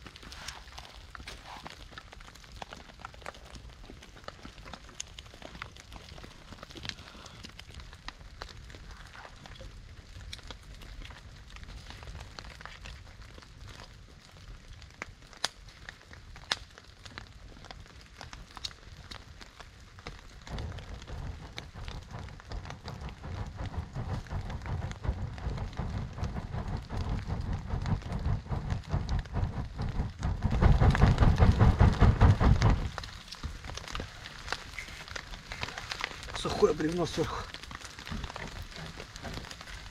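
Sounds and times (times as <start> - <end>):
rain falling: 0.0 - 39.9
wood fire crackling and popping: 0.0 - 39.9
low rumbling noise: 19.8 - 39.9.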